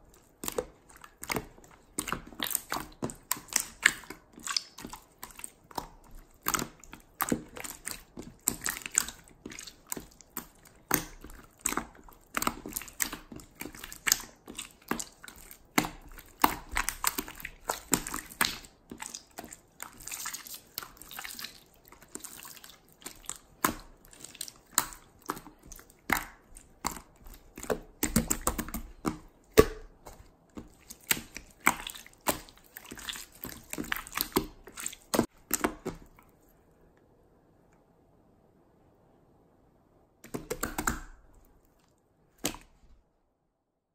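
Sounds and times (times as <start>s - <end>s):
hands squishing slime: 0.0s - 36.5s, 40.2s - 41.6s, 42.4s - 42.9s.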